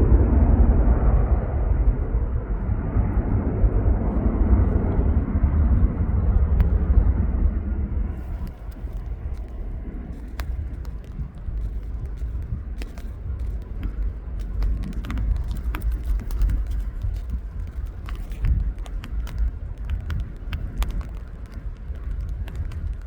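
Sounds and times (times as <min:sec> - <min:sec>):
wind buffeting microphone: 0:00.0 - 0:23.0
faint ticks: 0:06.6 - 0:23.0.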